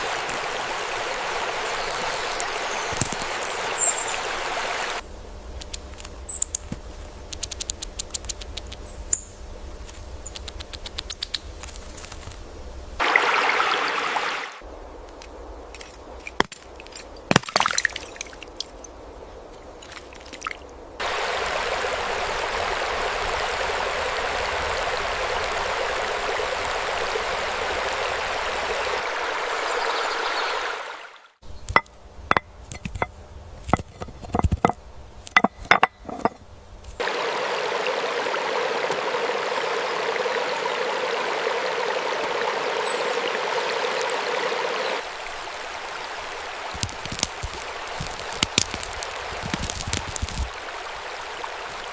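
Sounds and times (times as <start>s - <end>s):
rushing water: 0.0s - 5.0s, 13.0s - 14.7s, 17.3s - 19.0s, 19.7s - 36.4s, 37.0s - 51.9s
small clicks and ticks: 5.6s - 8.8s, 46.8s - 50.6s.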